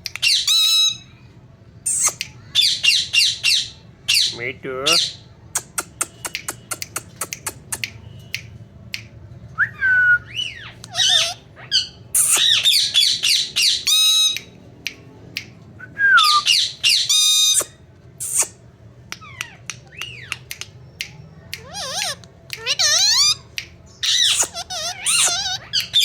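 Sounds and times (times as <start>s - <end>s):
parakeet whistles and squawks: 0.2s - 8.4s, 10.2s - 14.6s, 16.2s - 26.0s
parakeet clicks: 5.6s - 9.2s, 19.1s - 26.0s.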